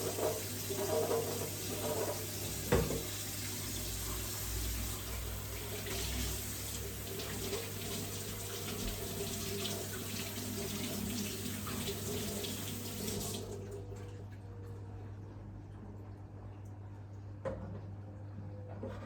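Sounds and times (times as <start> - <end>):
tap water running into sink: 0.0 - 13.9.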